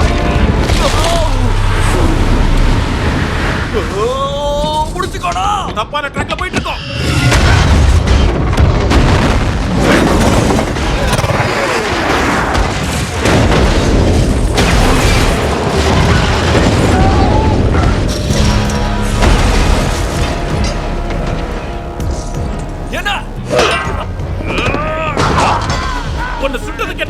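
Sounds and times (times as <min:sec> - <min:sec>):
dramatic orchestral music: 0:00.0 - 0:04.2, 0:18.0 - 0:27.0
heavy booms and rumbling: 0:00.0 - 0:05.2, 0:12.4 - 0:27.0.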